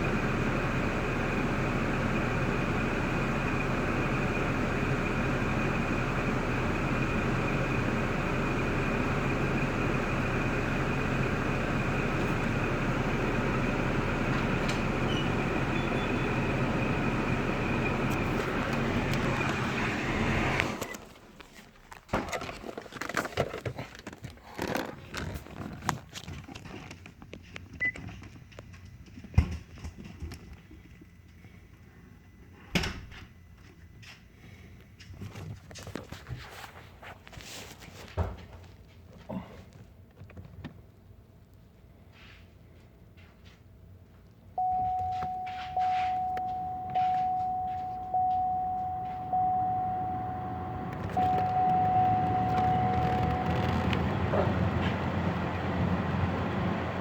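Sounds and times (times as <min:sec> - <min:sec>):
car engine running: 0:00.0 - 0:23.1, 0:44.6 - 0:57.0.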